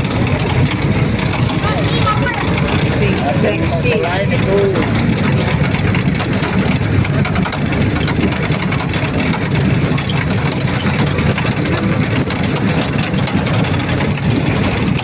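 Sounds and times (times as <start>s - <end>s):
car engine running while driving: 0.0s - 15.0s.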